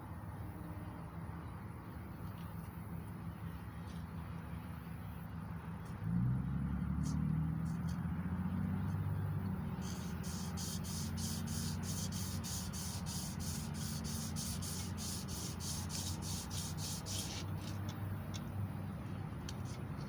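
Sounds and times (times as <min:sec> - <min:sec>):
emery cloth rubbing metal: 0:09.8 - 0:17.8.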